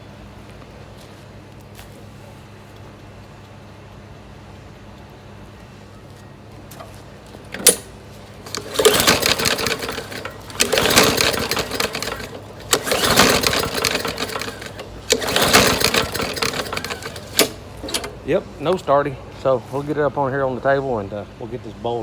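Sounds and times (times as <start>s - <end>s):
lawnmower recoil starter pulls: 6.7s - 18.4s
engine turning over: 6.8s - 18.4s.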